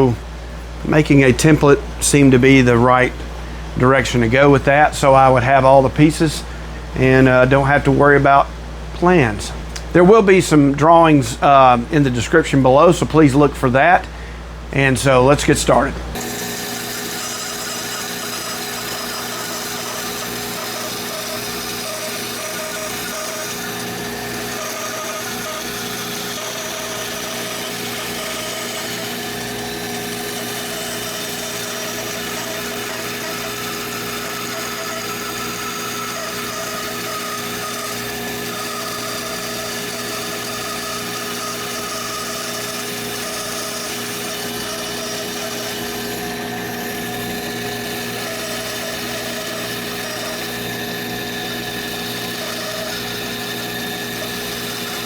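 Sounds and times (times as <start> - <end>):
power tool motor humming: 16.1 - 55.0.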